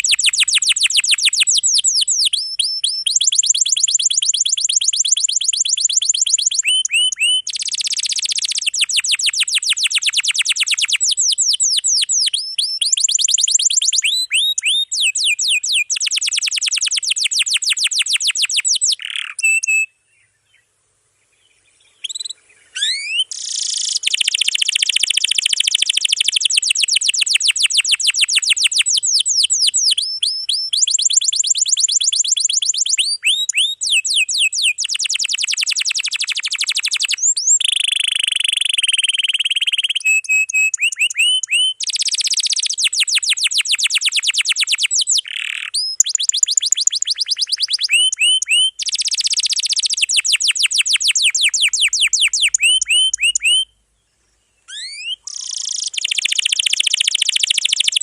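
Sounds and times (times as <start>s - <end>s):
canary singing trills: 0.0s - 20.6s, 21.3s - 53.8s, 54.6s - 58.0s.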